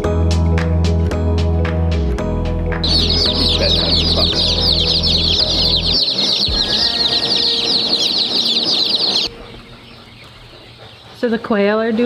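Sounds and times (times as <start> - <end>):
background music: 0.0 - 12.0
chicks peeping: 2.8 - 12.0.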